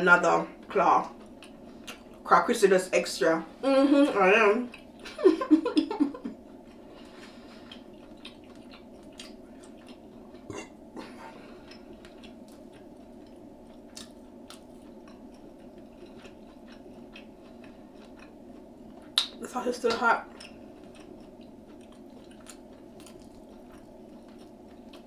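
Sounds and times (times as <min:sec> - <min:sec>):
steady low hum: 0:00.0 - 0:25.0
crunchy chewing: 0:06.4 - 0:19.4, 0:20.3 - 0:25.0.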